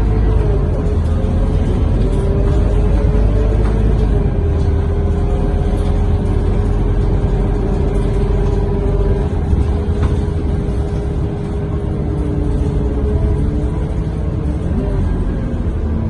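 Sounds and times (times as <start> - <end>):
bus diesel engine rumbling: 0.0 - 16.0.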